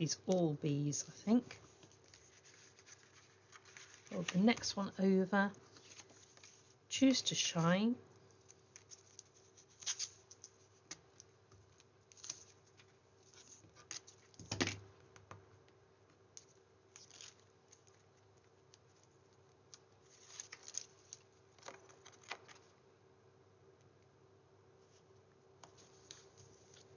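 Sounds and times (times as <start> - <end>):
paper rustling: 1.4 - 4.8, 5.7 - 6.8, 8.4 - 14.5, 20.0 - 22.7.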